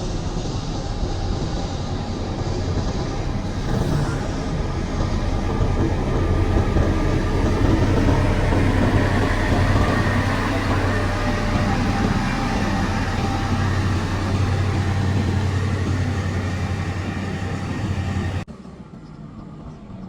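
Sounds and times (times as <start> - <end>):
diesel engine rumbling under load: 0.0 - 18.5.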